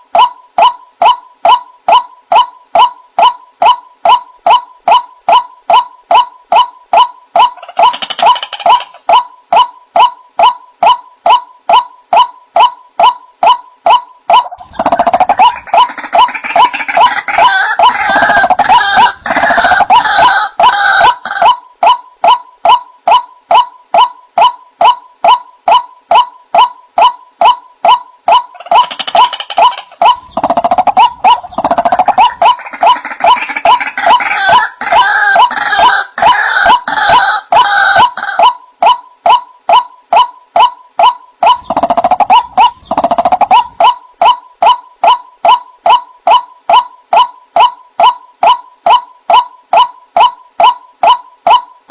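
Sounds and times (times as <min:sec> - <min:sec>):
rapid harsh bird calling: 0:00.2 - 0:51.6
bird repeated note: 0:00.2 - 0:51.8.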